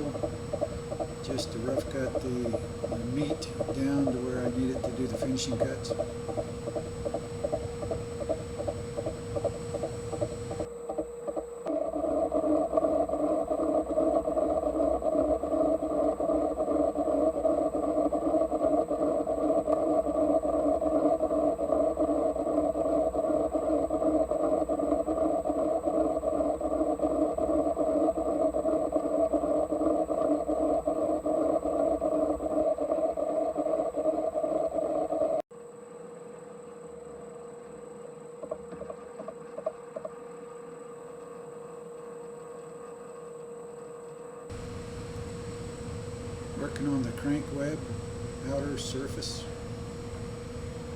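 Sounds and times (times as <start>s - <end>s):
lathe running hum: 0.0s - 10.7s, 44.5s - 50.9s.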